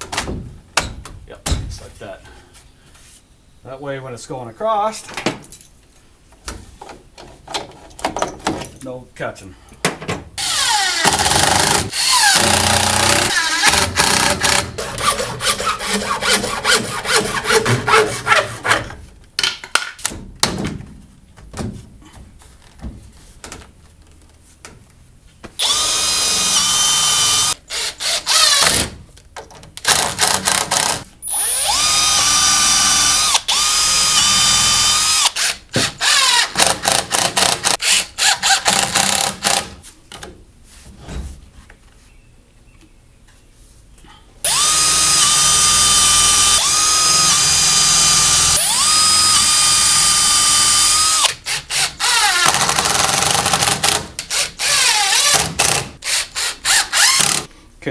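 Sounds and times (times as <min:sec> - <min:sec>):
cordless drill whining: 0:10.4 - 0:14.6, 0:25.6 - 0:28.8, 0:29.9 - 0:36.6, 0:44.5 - 0:53.2, 0:54.3 - 0:57.4.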